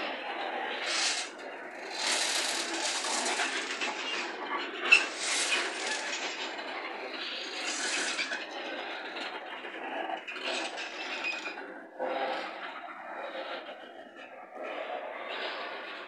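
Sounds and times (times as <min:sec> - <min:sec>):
train wheels grinding on rails: 0:00.5 - 0:09.3.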